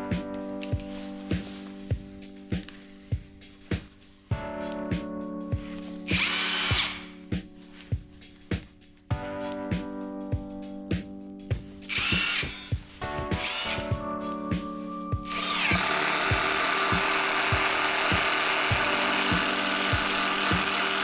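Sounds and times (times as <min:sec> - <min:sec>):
music with steady beat: 0:00.0 - 0:21.0
cordless impact driver whine: 0:06.1 - 0:07.1, 0:11.9 - 0:12.7, 0:13.4 - 0:13.9, 0:15.3 - 0:21.0.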